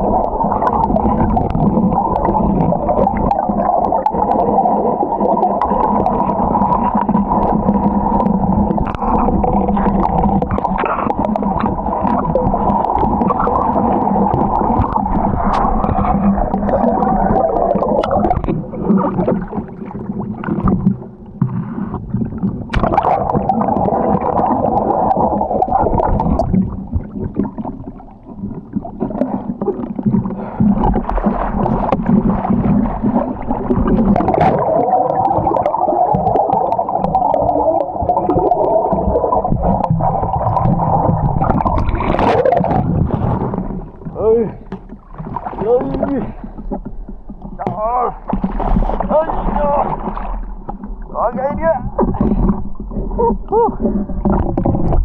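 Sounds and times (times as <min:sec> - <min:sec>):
underwater rumble and gurgling: 0:00.0 - 0:55.0.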